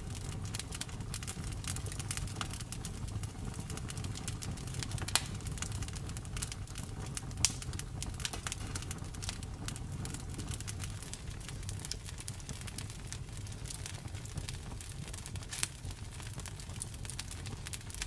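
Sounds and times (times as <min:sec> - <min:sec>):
wood fire crackling: 0:00.0 - 0:18.0
sharp pops and snaps: 0:05.0 - 0:05.6, 0:07.4 - 0:08.8.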